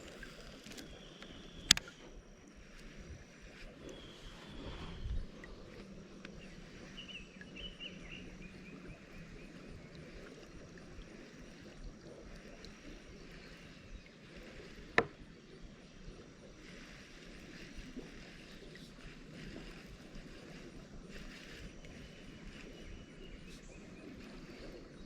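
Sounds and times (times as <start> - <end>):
faint chirps: 0.0 - 25.0.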